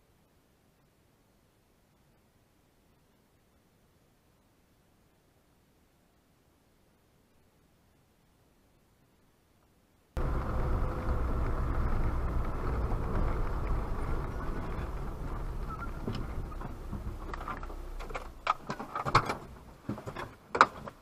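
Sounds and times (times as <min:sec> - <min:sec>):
car engine rumbling: 0:10.2 - 0:20.2
sharp clicks and knocks: 0:10.2 - 0:21.0.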